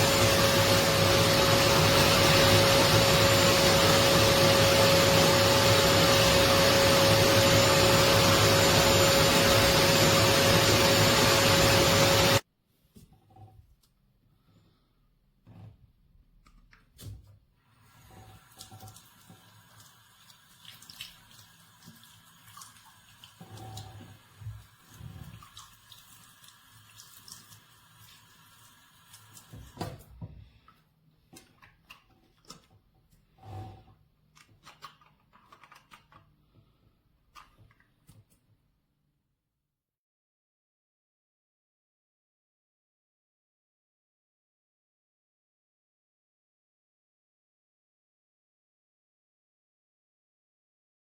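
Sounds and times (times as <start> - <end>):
water running and splashing: 18.0 - 30.0.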